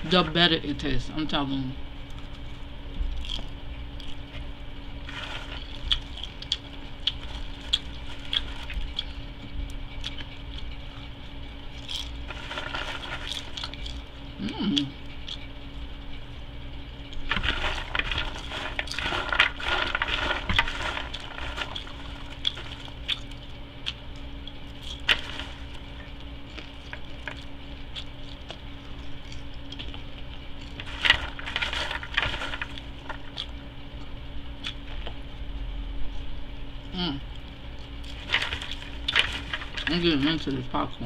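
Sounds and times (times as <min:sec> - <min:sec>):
person chewing: 0:02.1 - 0:15.5, 0:17.1 - 0:33.6, 0:34.6 - 0:35.2.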